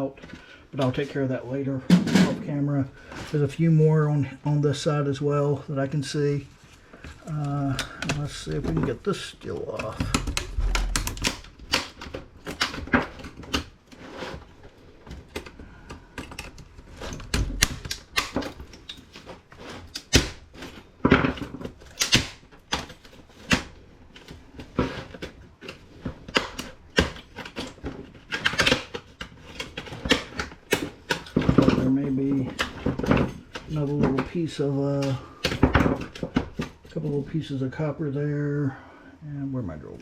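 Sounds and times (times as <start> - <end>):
hand tools clicking and scraping: 7.0 - 37.1.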